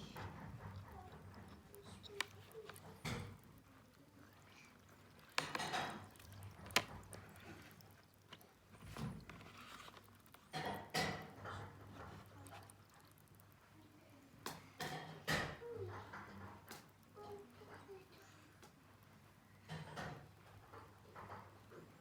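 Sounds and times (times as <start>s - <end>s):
handling scrapes and rustles: 8.3s - 10.5s.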